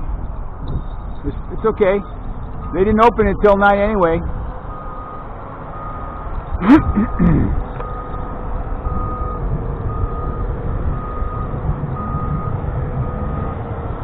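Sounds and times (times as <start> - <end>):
steady low rumble: 0.0 - 14.0
vehicle backup alarm beeping: 1.6 - 3.6, 4.6 - 13.5.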